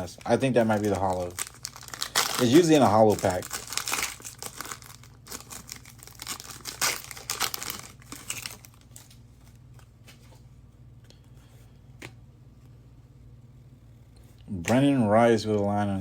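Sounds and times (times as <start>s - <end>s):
wrapper tearing and crinkling: 0.2s - 9.2s.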